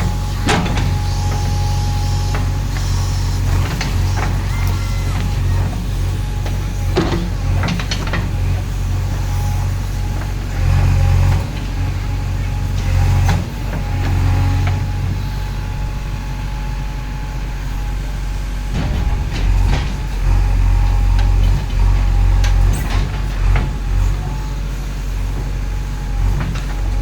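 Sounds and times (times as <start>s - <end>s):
diesel engine running under load: 0.0s - 27.0s
knocks: 18.7s - 23.8s.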